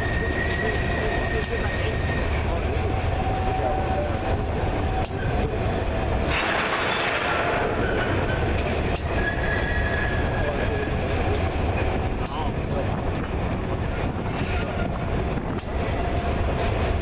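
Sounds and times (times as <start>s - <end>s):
steel wheels squealing: 0.0s - 12.9s, 13.5s - 17.0s
train rumbling past: 0.0s - 17.0s
sharp clicks: 15.5s - 15.8s.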